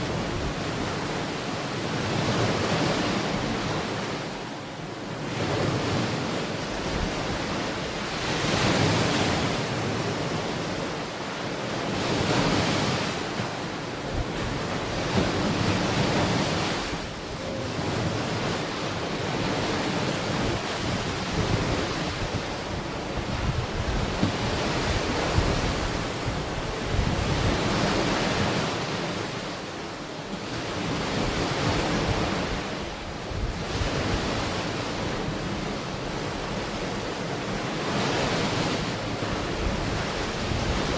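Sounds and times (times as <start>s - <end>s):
ocean waves breaking on beach: 0.0s - 40.9s
wind buffeting microphone: 14.0s - 28.7s.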